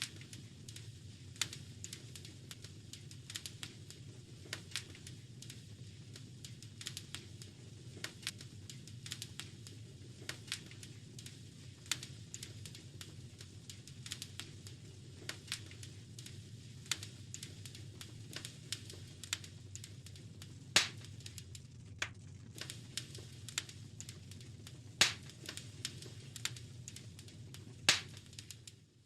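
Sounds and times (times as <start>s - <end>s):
loud fire pops: 0.0s - 28.8s
wood fire crackling: 0.0s - 29.0s.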